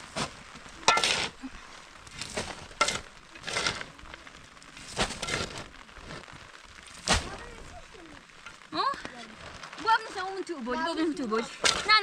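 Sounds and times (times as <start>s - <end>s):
faint steady hiss: 0.0s - 12.0s
rustling crinkling handling noises: 0.0s - 12.0s.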